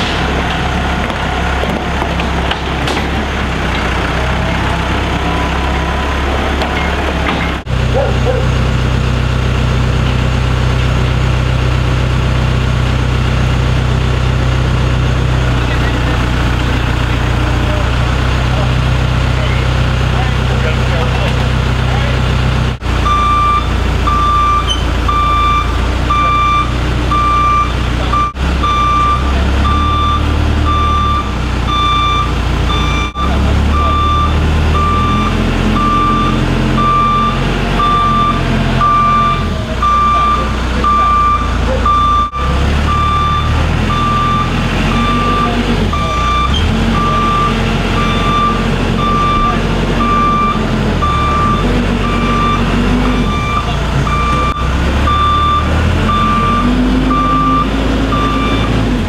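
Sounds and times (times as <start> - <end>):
machine engine rumble: 0.0 - 59.0
backup alarm beeping: 23.0 - 58.8.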